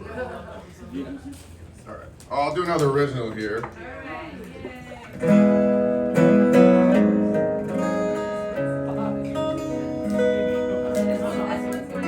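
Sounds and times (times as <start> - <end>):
acoustic guitar chords ringing: 5.2 - 12.0.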